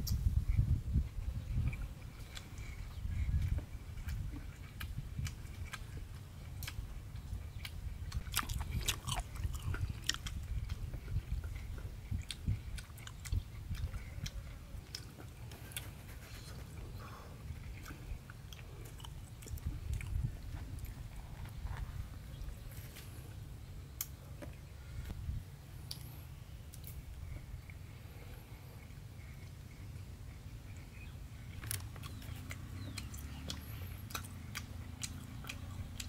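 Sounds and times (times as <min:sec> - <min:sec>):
man chewing with wet smacks: 0:00.0 - 0:25.2, 0:25.8 - 0:36.0
mouth clicks: 0:30.7 - 0:36.0.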